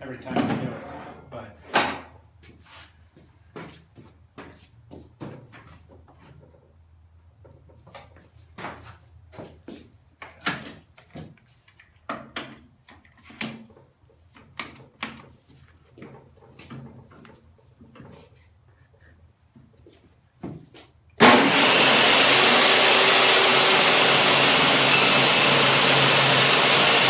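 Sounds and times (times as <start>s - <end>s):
knocks and scrapes at table saw: 21.2s - 27.0s.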